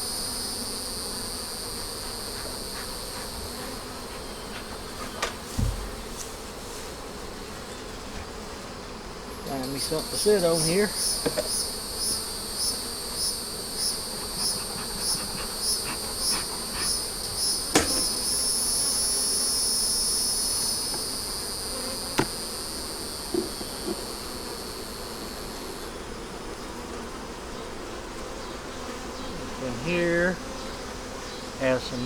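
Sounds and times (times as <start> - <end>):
high-pitched insect call: 0.0 - 5.4, 9.4 - 26.1
honey bees humming: 0.0 - 32.0
sharp knocks: 17.7 - 18.1.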